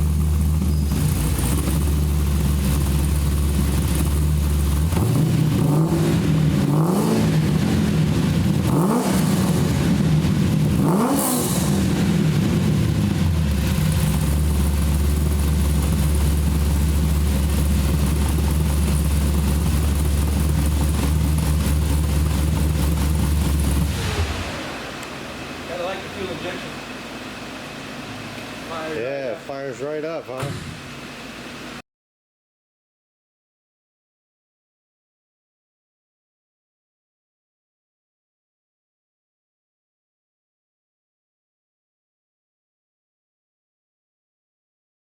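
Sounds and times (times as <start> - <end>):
car engine idling and revving: 0.0 - 28.8.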